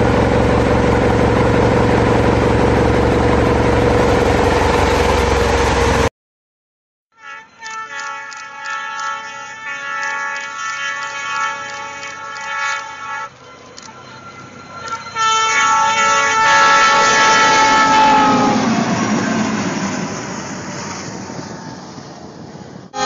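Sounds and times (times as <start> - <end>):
train rushing past: 0.0 - 6.1, 8.0 - 23.0
train horn: 7.1 - 19.5.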